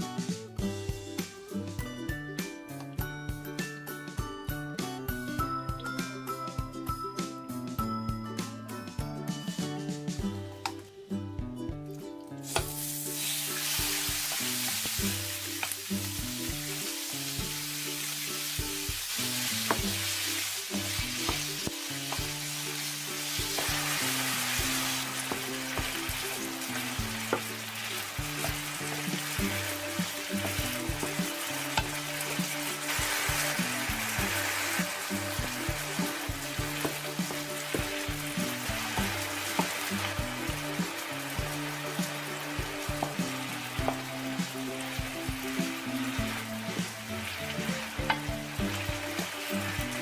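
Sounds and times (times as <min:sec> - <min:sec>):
background music: 0:00.0 - 0:50.0
chicken sizzling in hot oil: 0:11.9 - 0:50.0.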